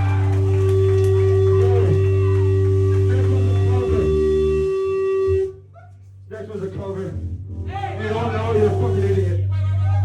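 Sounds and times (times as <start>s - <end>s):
low bass drone: 0.0s - 5.7s, 6.4s - 10.0s.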